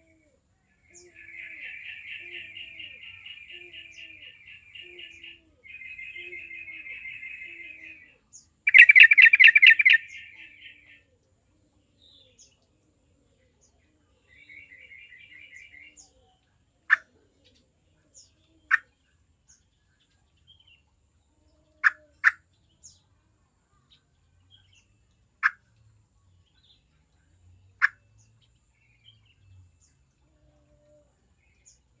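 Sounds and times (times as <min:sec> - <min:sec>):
bird chattering and calling: 0:01.0 - 0:08.0, 0:08.7 - 0:11.0, 0:16.8 - 0:17.2, 0:18.6 - 0:18.9, 0:21.8 - 0:22.4, 0:25.4 - 0:25.7, 0:27.8 - 0:28.0.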